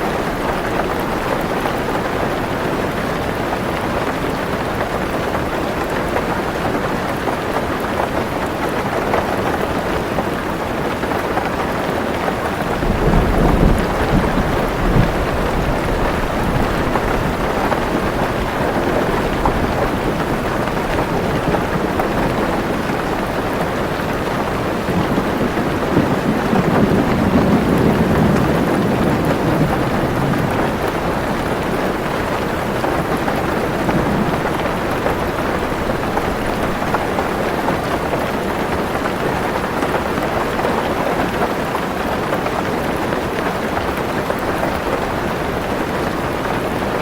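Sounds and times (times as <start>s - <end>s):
heavy rain on a car roof: 0.0s - 47.0s
thunder rumbling: 12.6s - 39.6s.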